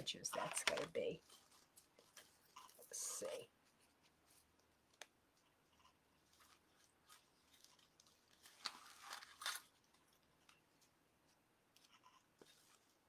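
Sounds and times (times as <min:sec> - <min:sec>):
ribbon rustling and crinkling: 0:00.0 - 0:05.5, 0:06.1 - 0:11.0.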